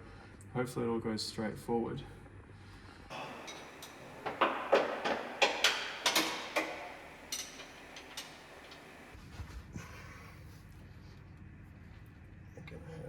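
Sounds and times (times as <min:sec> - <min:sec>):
hand tools clicking on bolts: 0:03.1 - 0:09.2.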